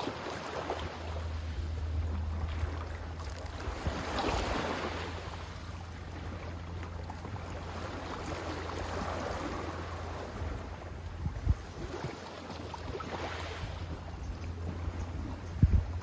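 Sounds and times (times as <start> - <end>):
sea waves washing: 0.0 - 16.0
steady low rumble: 9.6 - 11.8, 13.8 - 16.0.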